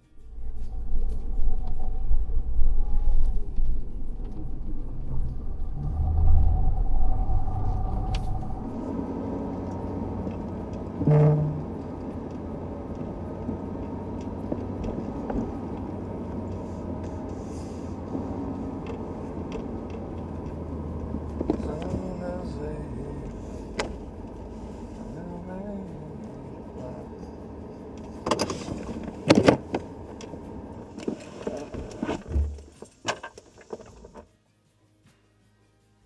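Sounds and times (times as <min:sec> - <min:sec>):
brief tone: 0:00.0 - 0:08.9
pickup truck engine running: 0:00.0 - 0:33.0.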